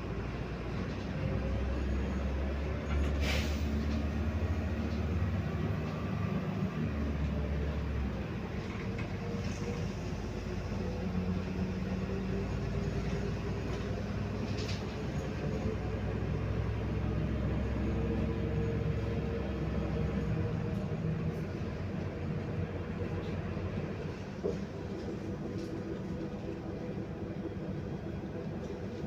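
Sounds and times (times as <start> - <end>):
bus engine drone: 0.0 - 29.0
short hiss: 3.2 - 3.7.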